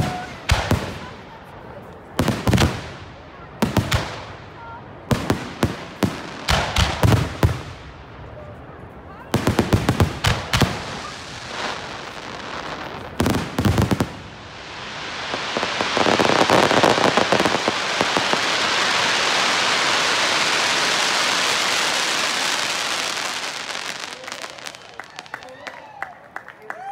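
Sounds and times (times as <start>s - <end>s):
dense firework crackling: 0.0s - 26.1s
firework shells bursting: 11.8s - 21.2s.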